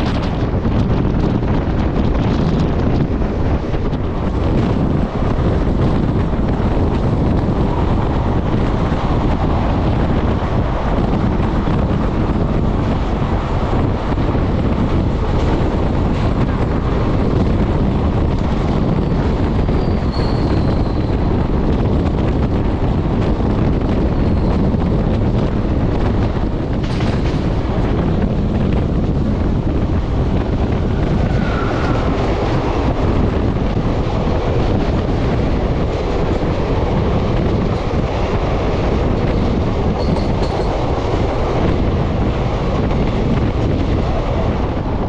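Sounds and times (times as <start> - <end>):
train rumbling on rails: 0.0 - 45.0
faint short squeal: 19.8 - 21.1.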